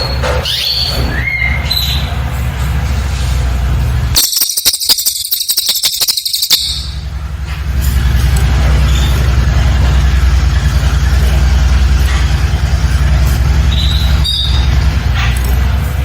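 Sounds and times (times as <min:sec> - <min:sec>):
faint high bird chirps: 0:04.2 - 0:07.1, 0:13.7 - 0:14.8.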